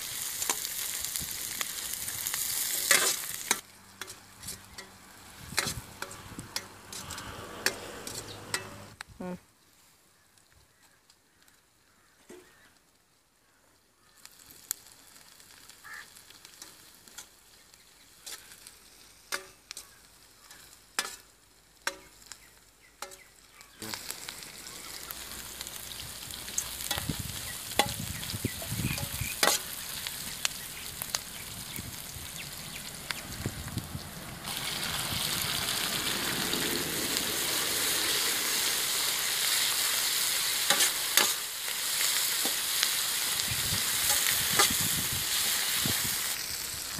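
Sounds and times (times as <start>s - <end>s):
oil sizzling in a wok: 0.0s - 9.0s, 12.5s - 46.9s
metal ladle scraping pan: 2.6s - 8.9s, 37.8s - 41.5s.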